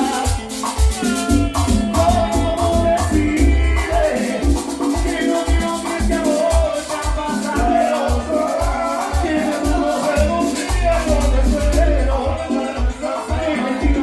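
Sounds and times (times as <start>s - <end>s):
maracas shaking: 0.0s - 14.0s
salsa band playing: 0.0s - 14.0s.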